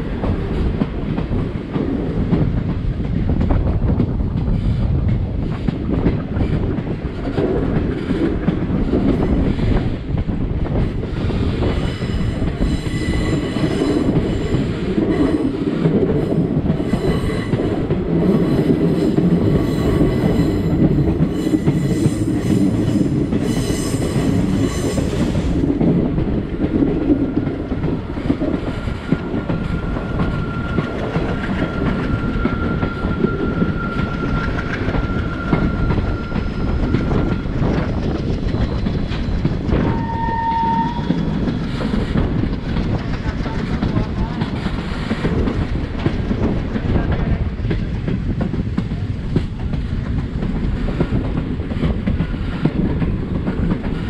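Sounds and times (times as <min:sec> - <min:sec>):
train wheels clattering on track: 0:00.0 - 0:54.0
train horn blast: 0:39.9 - 0:41.2.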